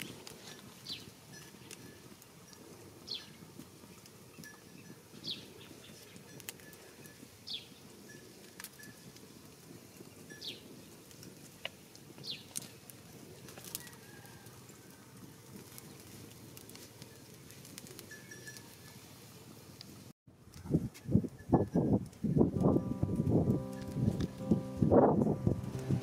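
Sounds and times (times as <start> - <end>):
wood fire crackling and snapping: 0.0 - 4.2, 6.0 - 7.1, 8.4 - 19.0, 22.0 - 24.7.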